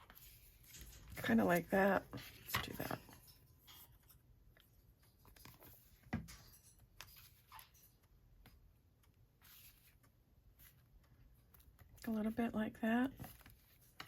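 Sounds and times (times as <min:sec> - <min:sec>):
paper rustling: 0:09.4 - 0:10.0.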